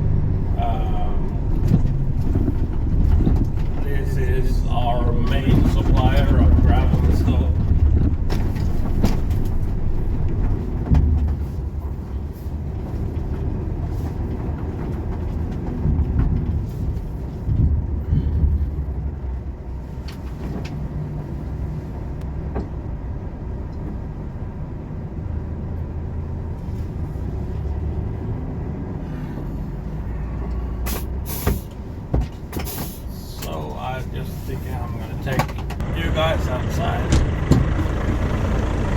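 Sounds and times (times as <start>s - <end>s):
truck diesel engine droning: 0.0s - 38.9s
knocks and rattles: 1.2s - 11.7s, 35.2s - 38.9s.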